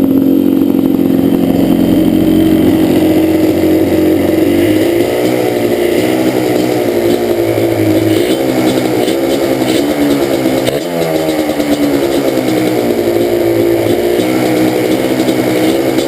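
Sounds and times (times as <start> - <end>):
two-stroke engine idling and misfiring: 0.0 - 16.0.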